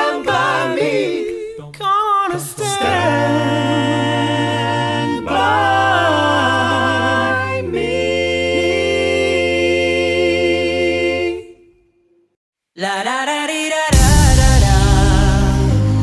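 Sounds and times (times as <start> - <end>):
a cappella close harmony singing: 0.0 - 11.8, 12.8 - 16.0
deep sung bass: 13.9 - 16.0.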